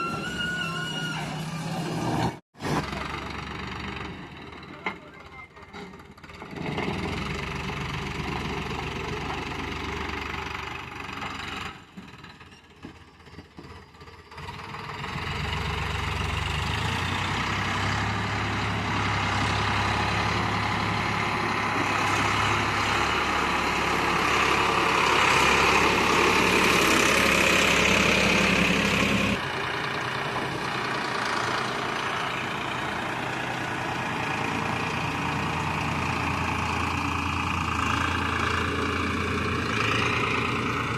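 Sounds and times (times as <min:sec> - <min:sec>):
heavy diesel engine running: 0:01.0 - 0:40.9.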